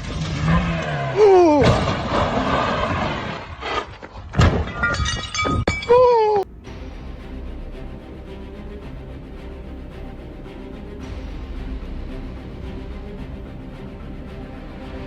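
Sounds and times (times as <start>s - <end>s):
car crash impact: 0.0s - 3.8s
breaking and clatter: 0.0s - 6.0s
background music: 5.9s - 15.0s.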